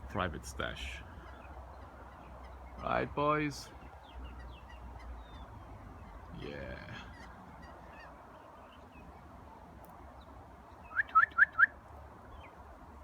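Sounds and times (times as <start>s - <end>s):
faint bird chirps: 10.1s - 12.6s.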